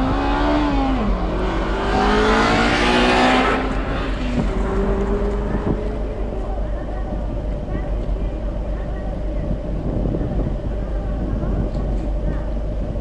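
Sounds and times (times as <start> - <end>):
car engine revving: 0.0 - 7.6.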